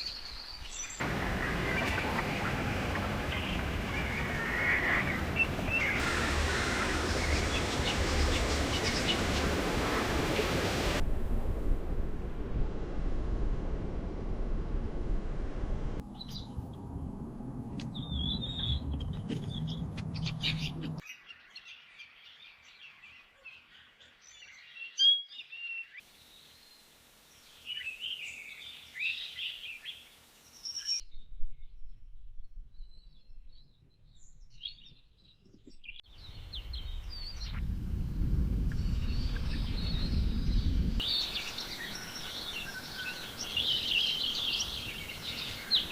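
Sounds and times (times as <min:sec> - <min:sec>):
small birds chirping: 0:00.0 - 0:11.0, 0:17.8 - 0:26.8, 0:32.8 - 0:37.6, 0:38.7 - 0:45.9
low wind-like rumble: 0:01.0 - 0:21.0, 0:36.2 - 0:45.9.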